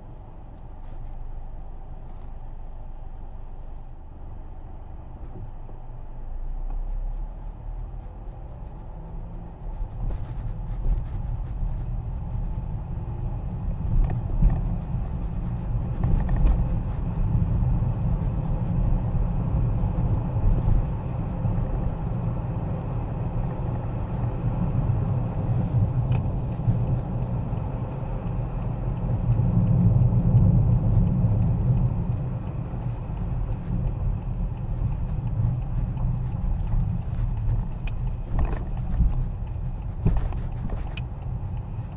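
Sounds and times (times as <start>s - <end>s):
car driving rumble: 0.0s - 41.9s
faint ticks: 25.3s - 41.9s.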